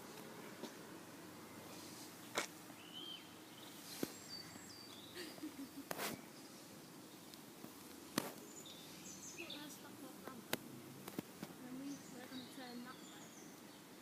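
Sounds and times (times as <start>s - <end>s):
outdoor background hiss: 0.0s - 14.0s
bird chirps: 1.4s - 7.3s, 8.4s - 9.9s, 11.7s - 14.0s.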